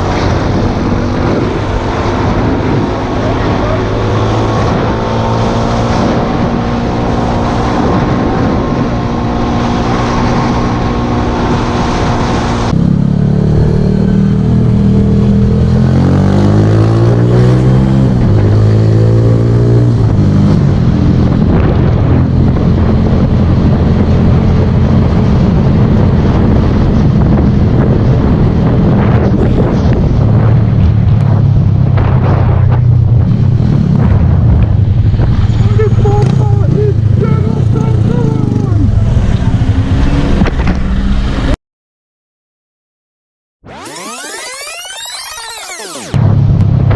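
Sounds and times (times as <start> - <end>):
motorcycle engine revving: 0.0 - 41.6
motorcycle engine running: 20.0 - 40.2.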